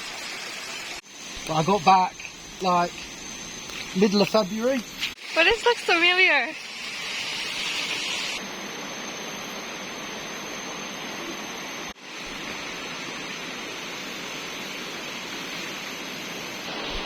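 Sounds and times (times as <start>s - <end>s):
thin high steady tone: 1.1s - 12.2s.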